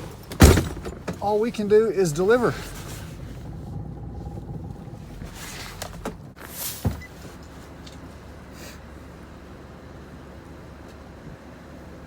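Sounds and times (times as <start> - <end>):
vehicle door shutting: 0.0 - 7.4
low engine rumble: 0.0 - 12.0.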